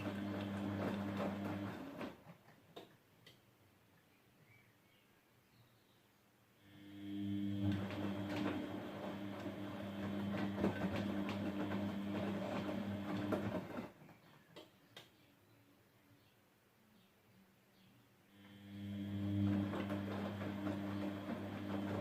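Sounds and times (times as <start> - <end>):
washing machine motor hum: 0.0 - 2.3, 6.6 - 14.2, 18.3 - 22.0.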